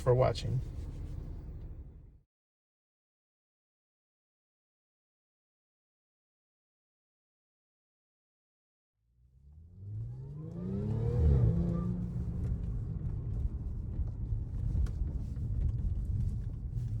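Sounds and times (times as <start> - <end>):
car engine starting and revving: 9.2 - 17.0.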